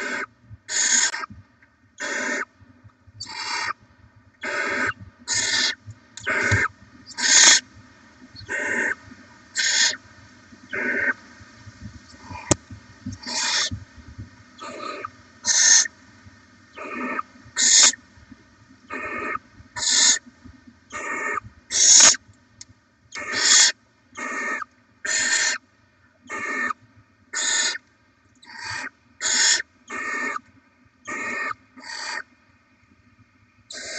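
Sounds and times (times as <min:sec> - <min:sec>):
owlets hissing begging calls: 0:00.0 - 0:01.3, 0:02.0 - 0:02.5, 0:03.2 - 0:03.8, 0:04.4 - 0:07.6, 0:08.4 - 0:10.0, 0:10.7 - 0:11.2, 0:12.1 - 0:13.8, 0:14.6 - 0:15.9, 0:16.7 - 0:18.0, 0:18.9 - 0:20.2, 0:20.9 - 0:22.2, 0:23.2 - 0:25.6, 0:26.3 - 0:26.8, 0:27.4 - 0:27.8, 0:28.4 - 0:30.4, 0:31.1 - 0:32.3.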